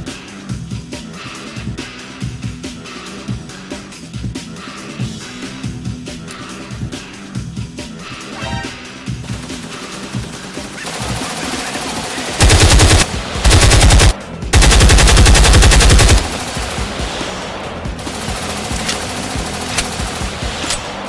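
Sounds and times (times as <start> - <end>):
background music: 0.0 - 21.0
rapid automatic gunfire: 9.3 - 17.4, 18.0 - 21.0.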